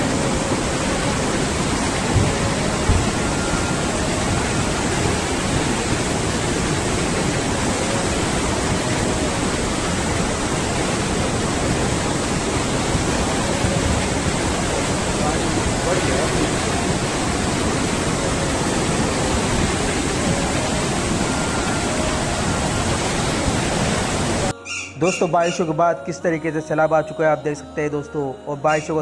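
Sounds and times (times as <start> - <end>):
floodwater rushing: 0.0 - 25.8
low knocks: 2.0 - 3.4.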